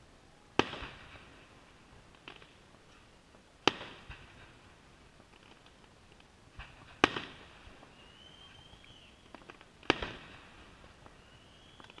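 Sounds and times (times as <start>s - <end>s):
faint crackles: 0.0s - 12.0s
firework whistle: 7.2s - 10.2s, 11.0s - 12.0s.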